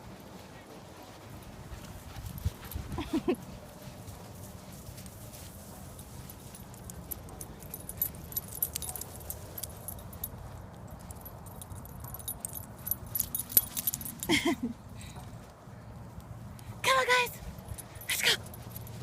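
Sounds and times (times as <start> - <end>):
dog tags jingling: 6.0 - 15.2, 17.4 - 19.0.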